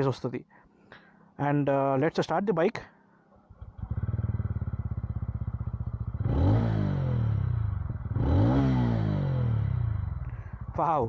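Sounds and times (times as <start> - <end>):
motorcycle engine idling and revving: 3.5 - 11.0.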